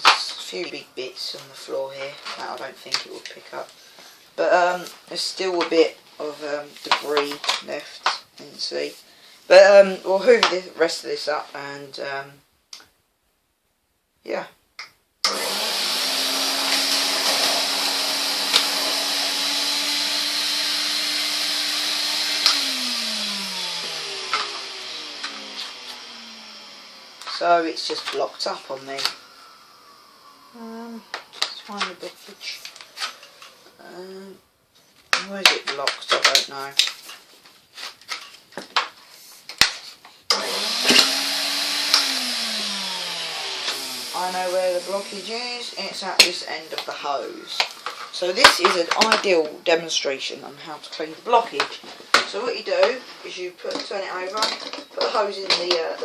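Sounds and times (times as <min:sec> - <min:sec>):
vacuum cleaner motor whine: 0:15.3 - 0:34.2, 0:40.3 - 0:46.0.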